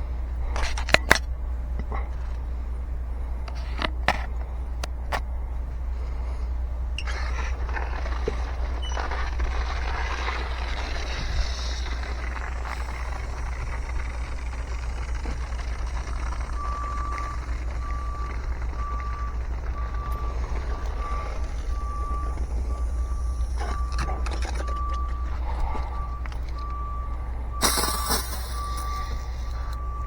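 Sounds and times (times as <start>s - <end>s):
vehicle engine rumble: 0.0s - 30.0s
electronic warning beeps: 8.4s - 30.0s.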